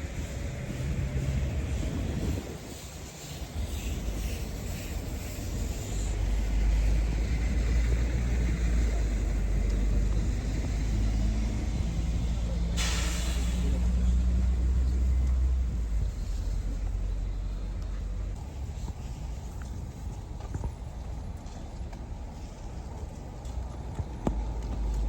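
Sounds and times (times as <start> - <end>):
heavy vehicle engine rumbling: 0.0 - 25.0
air brakes hissing: 0.2 - 6.4, 12.4 - 14.8.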